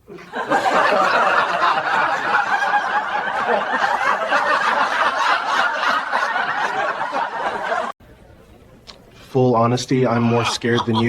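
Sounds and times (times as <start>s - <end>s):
audience laughter: 0.0s - 8.0s, 10.1s - 11.0s.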